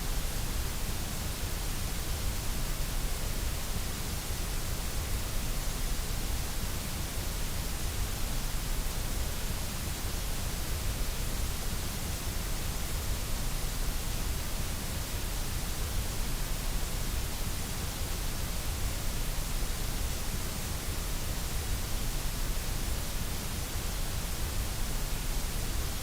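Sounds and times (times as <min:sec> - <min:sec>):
steady white noise: 0:00.0 - 0:26.0.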